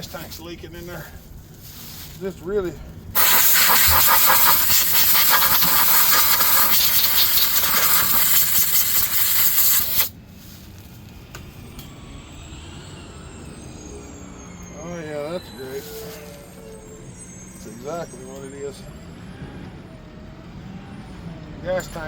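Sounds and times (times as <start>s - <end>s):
loud steady hiss: 3.2s - 10.2s.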